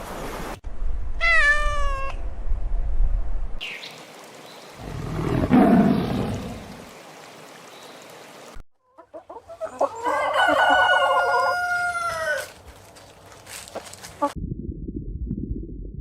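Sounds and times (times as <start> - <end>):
rough noisy animal sound: 4.8 - 6.9
chicken clucking: 8.8 - 12.4
rooster crowing: 9.9 - 12.6.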